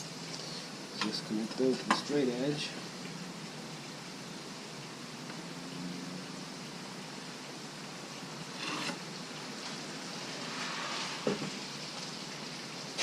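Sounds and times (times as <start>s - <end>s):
steady hiss: 0.0s - 13.0s
scratching on wood: 8.6s - 9.0s.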